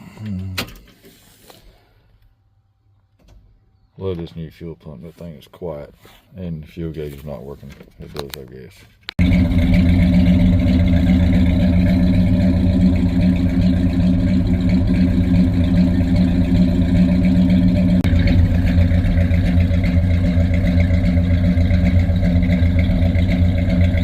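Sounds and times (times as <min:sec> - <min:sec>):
car engine idling: 0:09.2 - 0:24.0.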